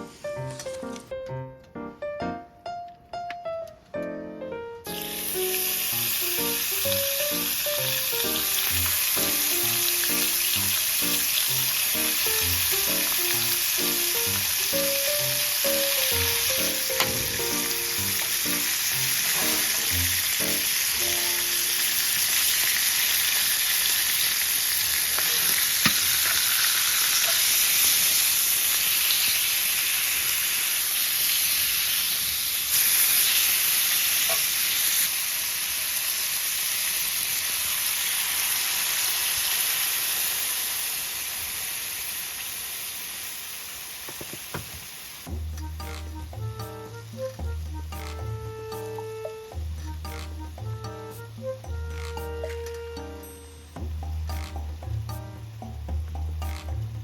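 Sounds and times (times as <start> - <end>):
background piano music: 0.0 - 22.5, 45.3 - 57.0
food sizzling in a pan: 4.8 - 56.7.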